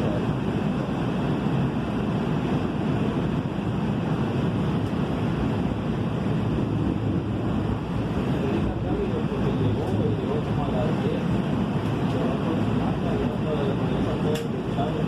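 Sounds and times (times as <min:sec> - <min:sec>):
train wheels rumbling on rail: 0:04.4 - 0:15.0.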